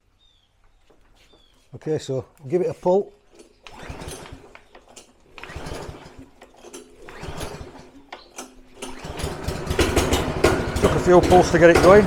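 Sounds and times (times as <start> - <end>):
lawnmower engine cranking: 2.4 - 12.0.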